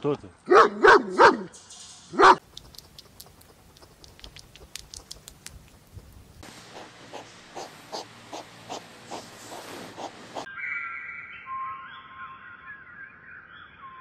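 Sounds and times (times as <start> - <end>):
dog barking: 0.5 - 1.5, 2.2 - 2.4
hedgehog chewing clicks: 2.4 - 9.3
hedgehogs snuffling: 2.4 - 10.5.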